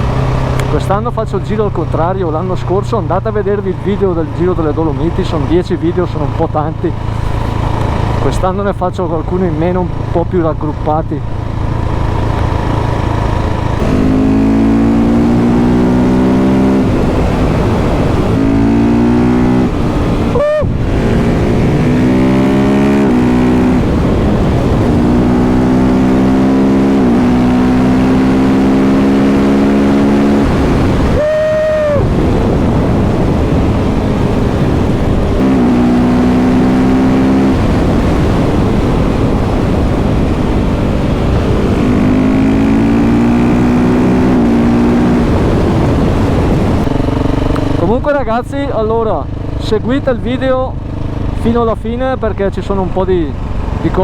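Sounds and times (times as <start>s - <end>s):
motorcycle engine revving: 0.0s - 54.0s
wind rush: 11.6s - 47.9s.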